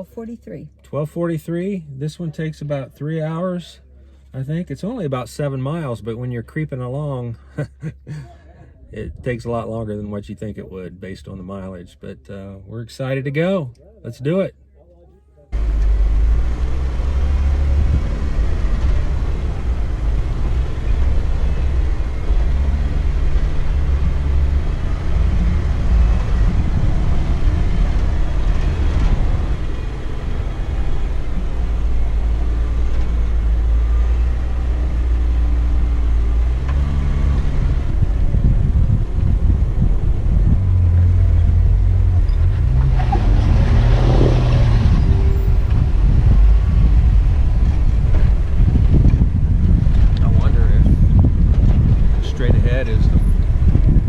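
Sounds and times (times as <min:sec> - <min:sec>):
off-road vehicle engine rumbling: 0:00.0 - 0:54.0.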